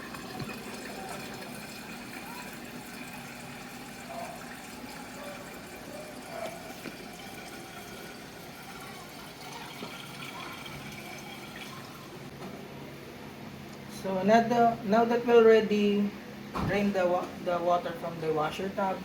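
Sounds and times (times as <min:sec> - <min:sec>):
water draining from hose: 0:00.0 - 0:12.2.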